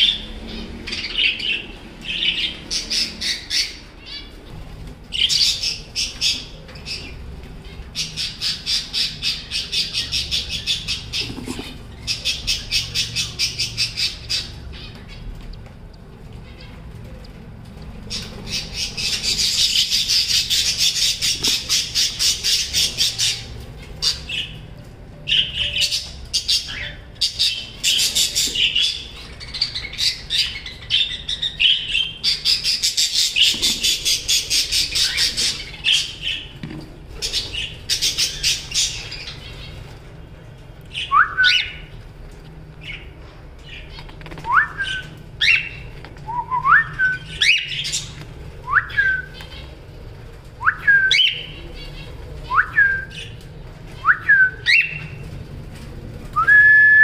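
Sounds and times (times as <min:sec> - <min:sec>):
birds raspy chattering: 0:00.0 - 0:55.8.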